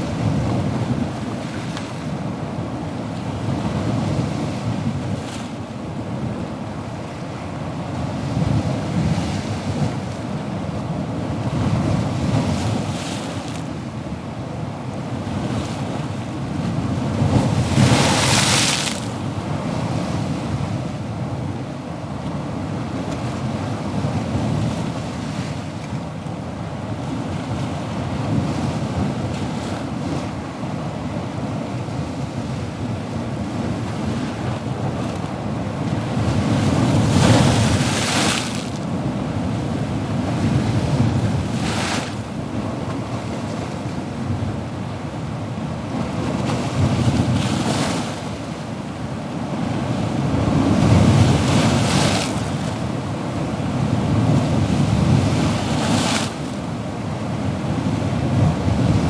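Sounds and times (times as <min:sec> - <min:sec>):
ocean waves washing: 0:15.8 - 0:20.4, 0:28.7 - 0:59.0
wave breaking: 0:17.6 - 0:19.3, 0:36.4 - 0:38.9.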